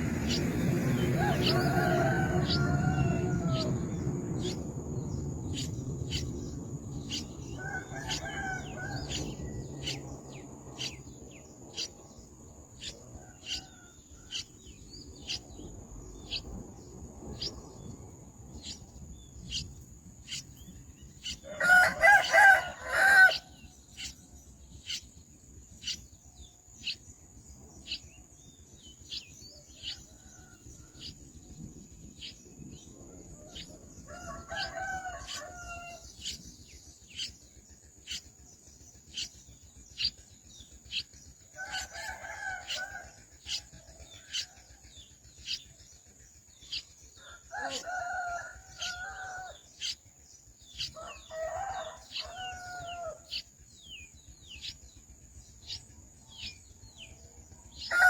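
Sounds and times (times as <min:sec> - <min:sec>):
rooster crowing: 0:00.3 - 0:04.6, 0:07.4 - 0:10.0, 0:21.4 - 0:23.6, 0:33.3 - 0:36.4, 0:41.6 - 0:44.5, 0:47.2 - 0:50.0, 0:50.8 - 0:53.4, 0:57.8 - 0:58.0.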